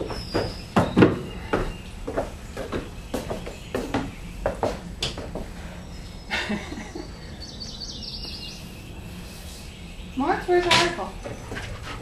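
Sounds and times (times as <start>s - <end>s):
small bird chirping: 0.0s - 1.9s, 7.0s - 11.5s
footsteps on wooden boards: 0.0s - 5.5s
outdoor background noise: 0.0s - 12.0s.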